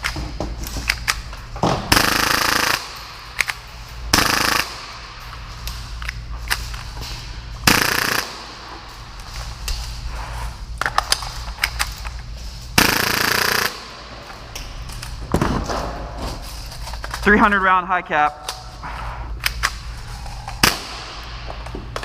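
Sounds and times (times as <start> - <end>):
airsoft pistol firing bursts: 1.9 - 3.0, 4.1 - 5.0, 7.6 - 8.6, 12.8 - 14.0.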